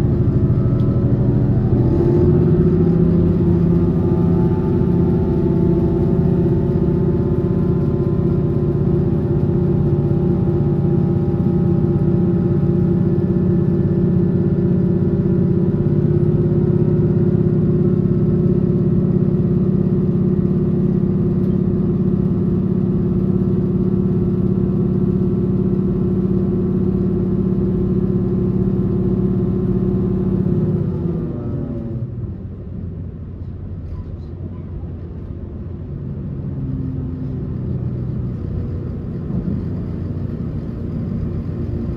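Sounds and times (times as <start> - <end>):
train drive humming: 0.0 - 41.9
wheels rumbling on rails: 0.0 - 41.9.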